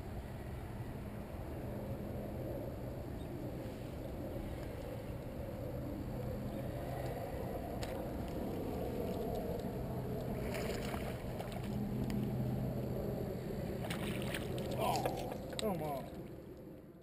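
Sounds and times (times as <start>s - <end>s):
faint low hum: 0.0s - 17.0s
water splashing: 10.3s - 11.8s, 13.8s - 16.3s.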